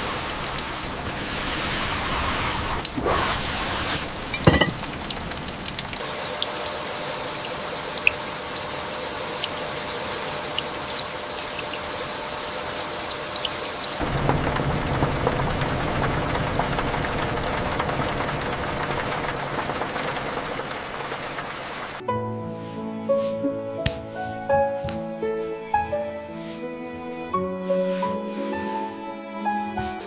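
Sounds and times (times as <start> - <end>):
steady rain falling: 0.0 - 22.0
water drops dripping: 4.3 - 9.6.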